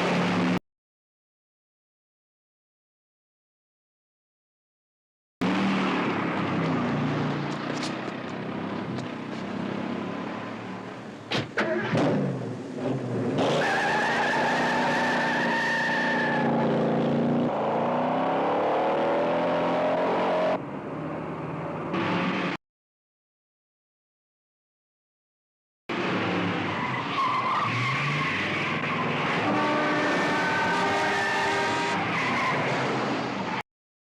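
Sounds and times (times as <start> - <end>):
car engines running hard: 5.4 - 22.6
tire squeal: 13.5 - 16.8, 26.5 - 33.6.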